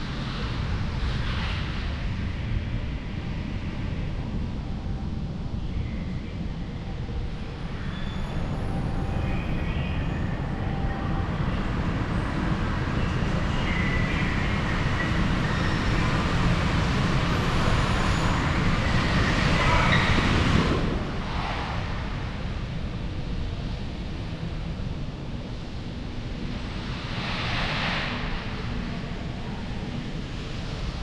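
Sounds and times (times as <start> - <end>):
road traffic rush: 7.2 - 31.0.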